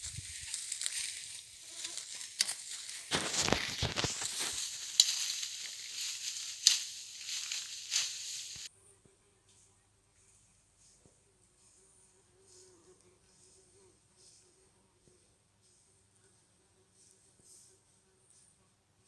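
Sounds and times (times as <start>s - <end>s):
dense crackling and rustling: 0.0s - 8.7s.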